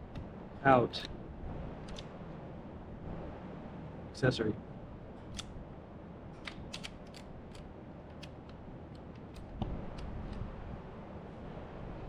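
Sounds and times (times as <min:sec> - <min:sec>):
ignition key and lock clicks: 0:06.4 - 0:07.6.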